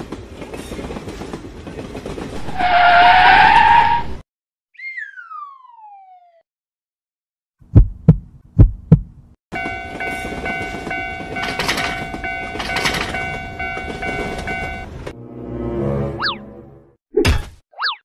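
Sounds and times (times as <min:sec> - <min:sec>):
heavy train wheel clacks: 0:00.0 - 0:02.6, 0:09.0 - 0:15.2
passing train rumble: 0:00.0 - 0:04.2, 0:09.5 - 0:16.2
level-crossing bell ringing: 0:09.6 - 0:15.0.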